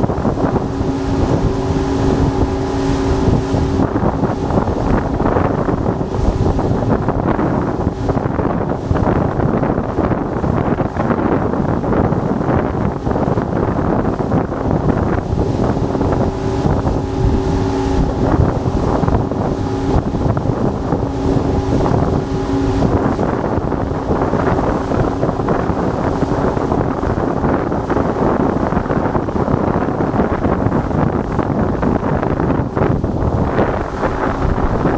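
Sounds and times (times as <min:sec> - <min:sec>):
wind buffeting microphone: 0:00.0 - 0:34.9
faint humming tone: 0:13.4 - 0:29.1.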